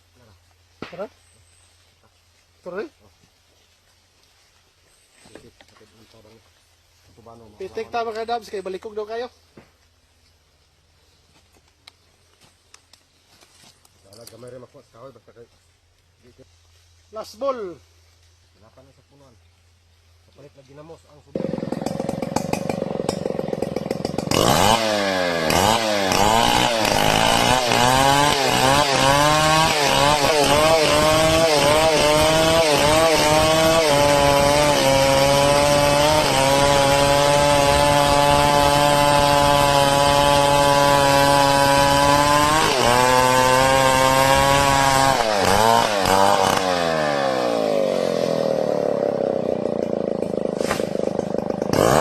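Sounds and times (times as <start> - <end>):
chainsaw cutting wood: 21.3 - 52.0.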